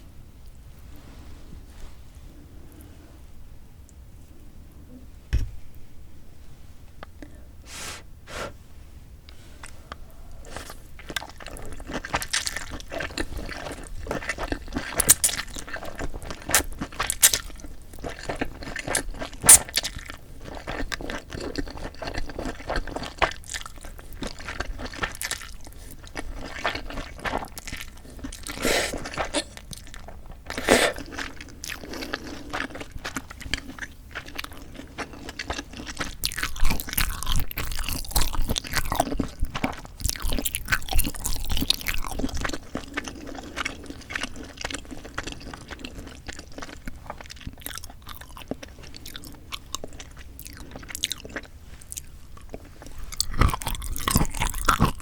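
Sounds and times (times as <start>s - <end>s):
chewing and crunching: 9.6s - 55.0s
wet mouth clicks: 15.0s - 15.5s, 19.5s - 19.7s.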